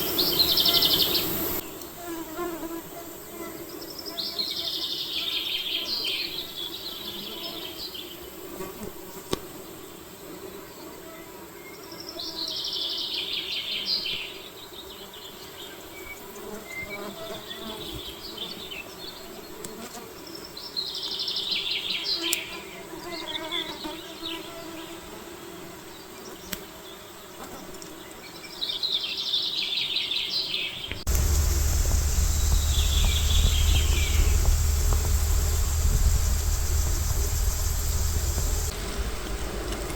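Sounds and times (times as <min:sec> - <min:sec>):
insects buzzing: 0:00.0 - 0:04.6, 0:30.9 - 0:39.9
songbird trilling: 0:31.1 - 0:38.7
rumble with hiss: 0:31.1 - 0:39.9.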